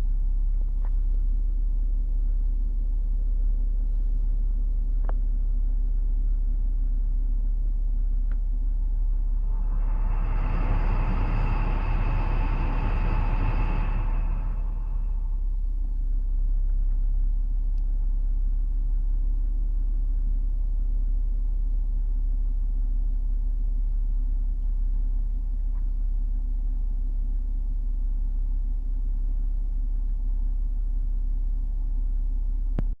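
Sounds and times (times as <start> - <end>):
car engine idling: 4.8 - 19.8
heater blower whirring: 9.2 - 15.4.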